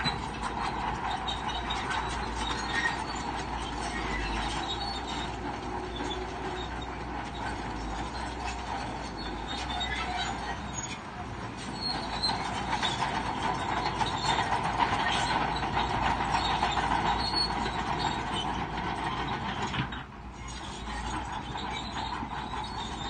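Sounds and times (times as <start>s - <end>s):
bulldozer engine running: 0.0s - 23.0s
bulldozer tracks clanking and squealing: 0.0s - 23.0s.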